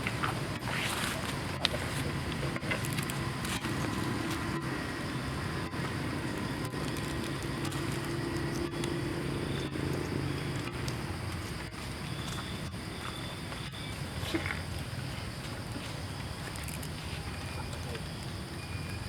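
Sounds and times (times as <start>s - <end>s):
outdoor noise: 0.0s - 19.0s
motor humming: 0.9s - 11.8s.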